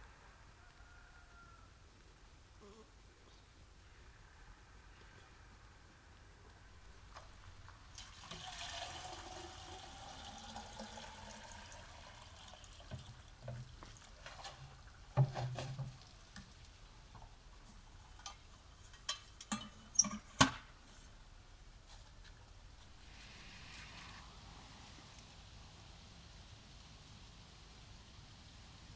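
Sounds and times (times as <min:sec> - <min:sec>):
liquid pouring into container: 0:07.9 - 0:15.9.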